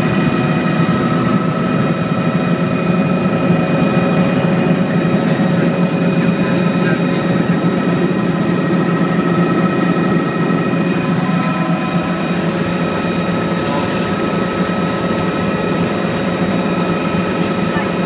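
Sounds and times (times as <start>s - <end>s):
helicopter engine and rotor drone: 0.0s - 18.0s
whining tones: 0.0s - 18.0s.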